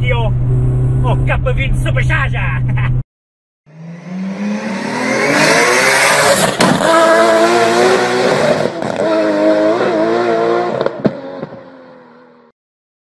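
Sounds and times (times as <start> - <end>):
car engine revving hard: 3.7 - 12.3.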